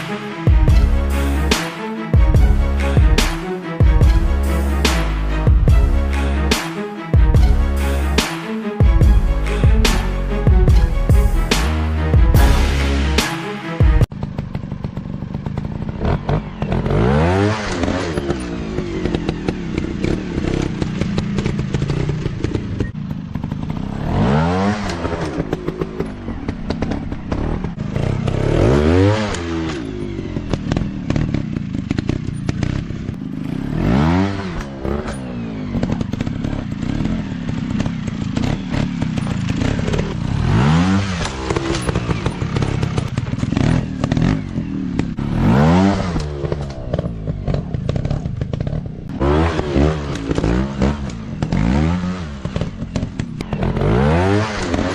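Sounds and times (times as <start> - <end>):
dirt bike engines revving: 14.2 - 54.9.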